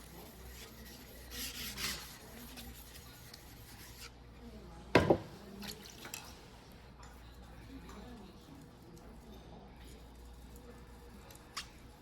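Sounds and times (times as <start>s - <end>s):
knife scraping whetstone: 0.0s - 4.1s.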